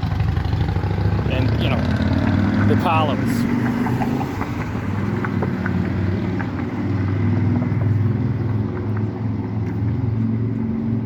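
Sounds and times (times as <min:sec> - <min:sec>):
vehicle engines running: 0:00.0 - 0:11.0.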